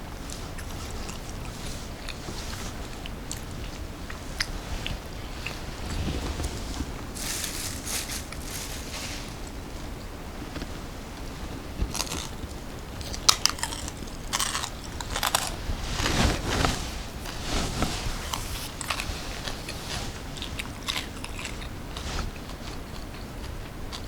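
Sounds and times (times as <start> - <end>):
small crisp crackles: 0.0 - 24.0
chewing: 0.3 - 6.6, 11.8 - 16.4, 18.3 - 24.0
crunchy bites: 13.0 - 16.1.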